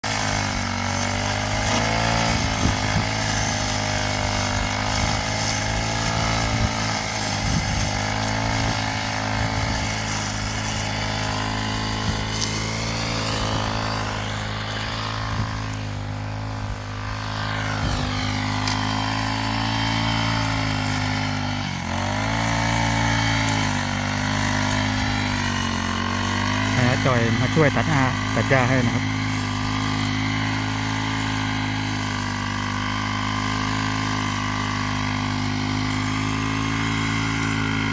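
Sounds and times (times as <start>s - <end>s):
brush cutter engine running: 0.0s - 37.9s.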